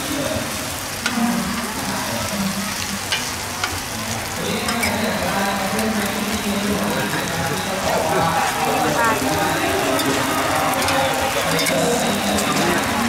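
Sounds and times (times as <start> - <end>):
eggs sizzling in hot oil: 0.0 - 13.0
metal spatulas clacking on pan: 3.1 - 3.8, 4.6 - 5.1, 9.9 - 12.9.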